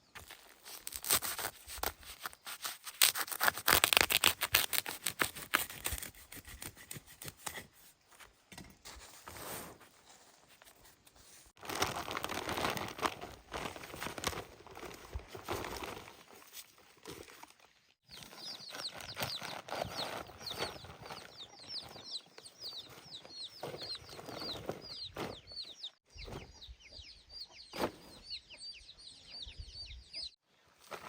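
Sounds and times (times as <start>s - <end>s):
rough material scraping and crunching: 0.1s - 7.9s, 30.8s - 31.0s.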